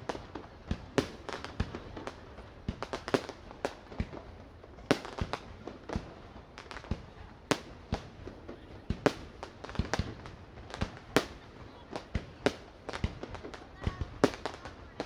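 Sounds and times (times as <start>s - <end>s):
fireworks bangs and cracks: 0.0s - 15.0s.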